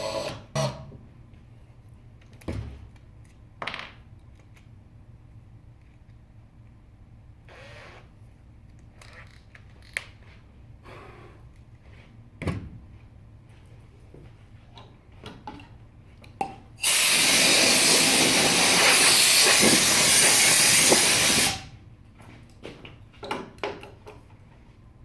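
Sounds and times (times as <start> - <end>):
pressurised jet hissing: 16.8 - 21.7.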